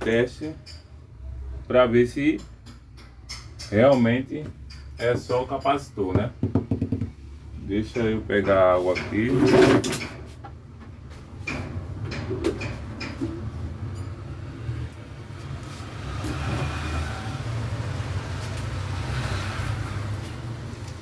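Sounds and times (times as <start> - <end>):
road traffic rumble: 10.2 - 21.0.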